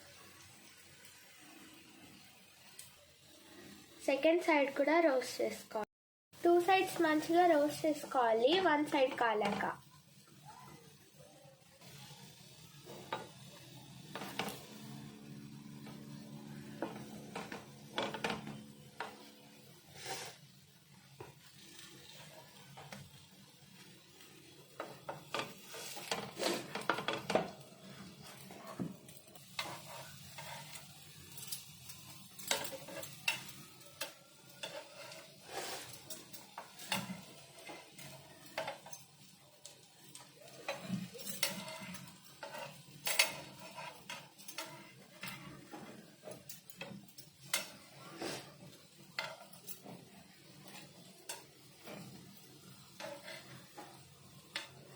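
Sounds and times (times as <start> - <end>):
food sizzling: 0.0 - 54.9
spatula scraping on a pan: 6.6 - 9.8, 11.8 - 20.6, 21.2 - 23.2, 23.8 - 54.9.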